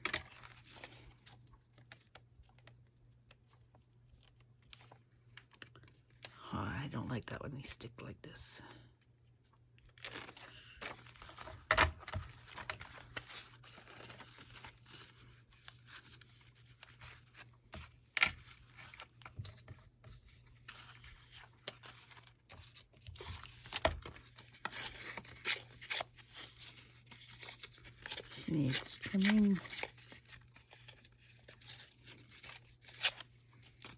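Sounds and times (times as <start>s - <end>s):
paper rustling and crinkling: 0.0s - 6.4s, 9.2s - 33.9s.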